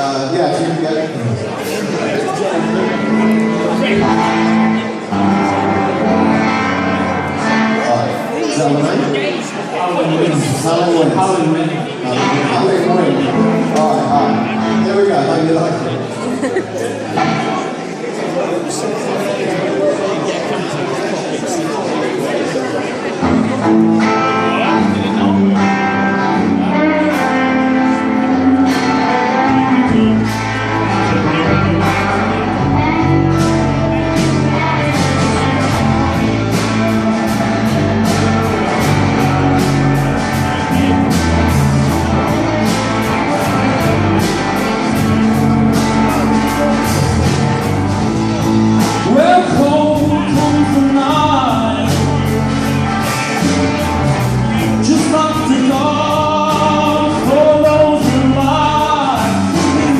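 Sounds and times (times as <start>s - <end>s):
bass guitar: 0.0s - 17.9s, 23.2s - 59.9s
guitars: 0.0s - 21.0s, 22.8s - 59.9s
person singing: 48.4s - 59.9s.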